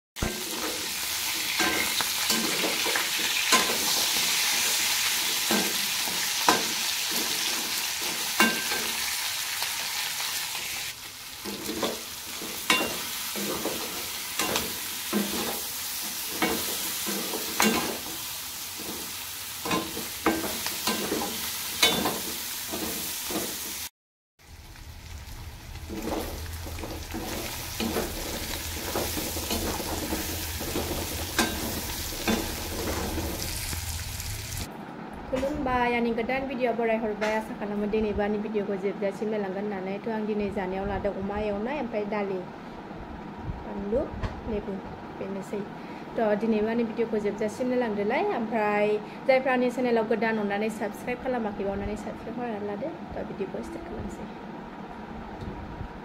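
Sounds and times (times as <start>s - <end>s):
pork sizzling in pan: 0.2s - 34.7s
spatula scraping and knocking pan: 25.8s - 33.7s.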